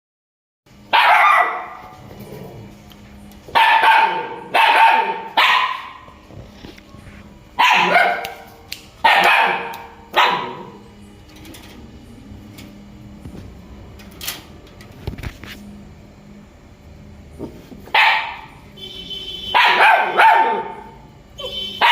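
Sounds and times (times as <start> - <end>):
dog barking loudly: 0.9 - 2.0, 3.5 - 6.1, 7.6 - 10.8, 17.9 - 18.5, 19.5 - 21.9.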